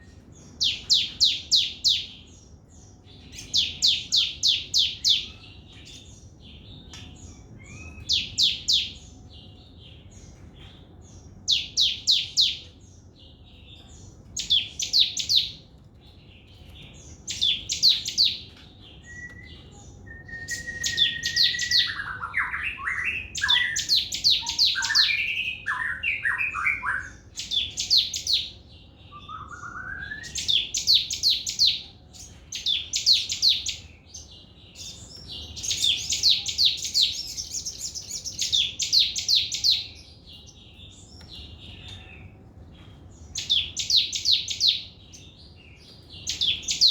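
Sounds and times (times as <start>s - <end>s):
lower whistled warbling: 19.1s - 22.2s, 29.3s - 30.4s.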